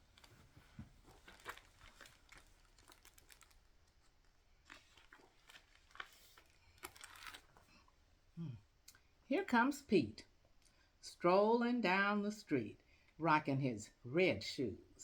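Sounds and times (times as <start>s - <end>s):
book pages rustling: 0.0s - 7.9s.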